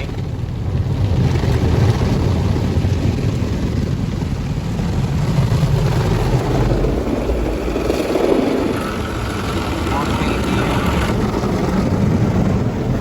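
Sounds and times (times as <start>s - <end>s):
car wash water jets spraying: 8.3s - 11.3s.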